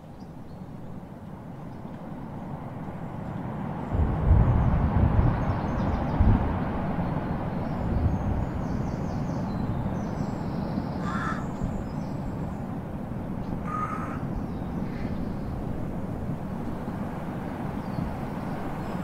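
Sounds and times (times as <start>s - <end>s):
steady low rumble: 1.3s - 10.1s
bird calling: 11.0s - 11.9s, 13.6s - 15.4s.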